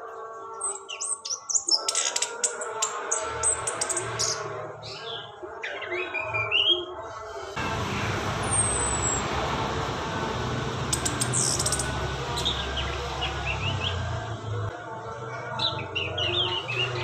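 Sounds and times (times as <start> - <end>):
songbirds chirping: 0.0 - 17.0
loud steady rushing noise: 7.3 - 14.7.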